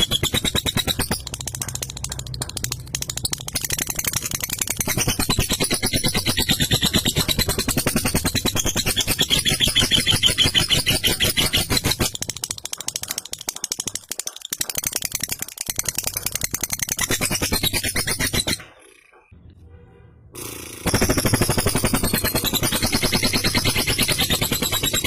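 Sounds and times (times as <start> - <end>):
lovebird chattering trill: 0.0 - 19.2.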